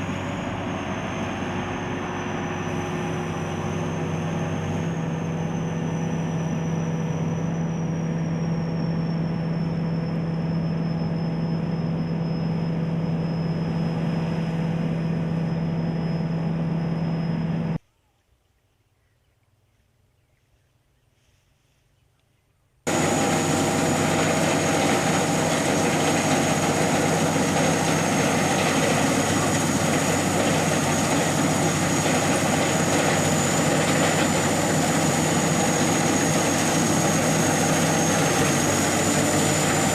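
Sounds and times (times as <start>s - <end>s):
combine harvester running: 0.0s - 17.8s, 22.9s - 39.9s.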